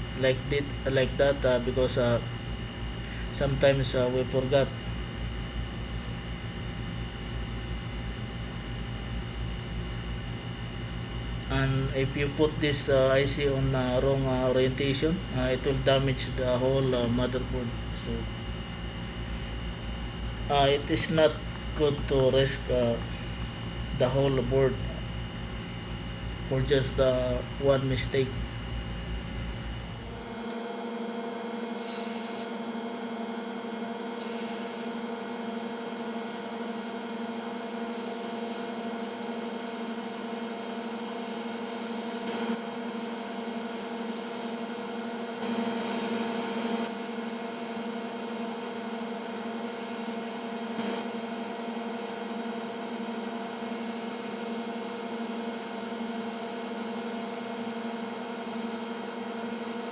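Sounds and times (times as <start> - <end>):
hot air blower humming: 0.0 - 59.9.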